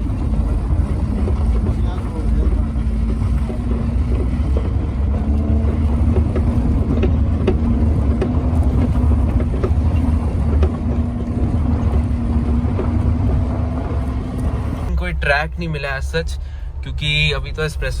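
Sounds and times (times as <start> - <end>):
light knocks and rattles: 0.0 - 14.9
car engine running: 0.0 - 18.0.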